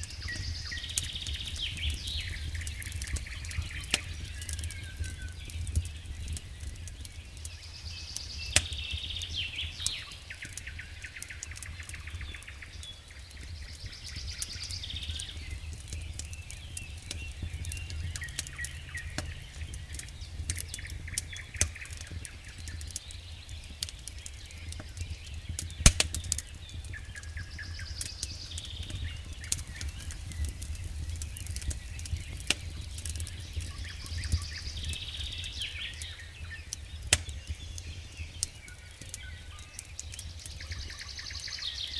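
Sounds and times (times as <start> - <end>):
campfire crackling and popping: 0.0 - 41.9
songbird singing: 0.0 - 41.9
low steady rumble: 15.5 - 21.6.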